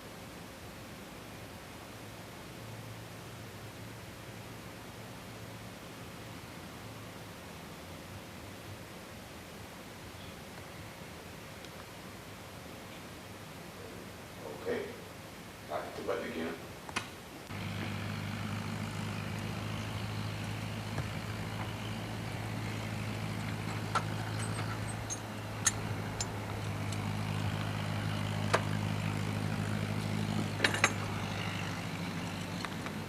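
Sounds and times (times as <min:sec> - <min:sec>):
low engine hum: 0:17.5 - 0:33.0.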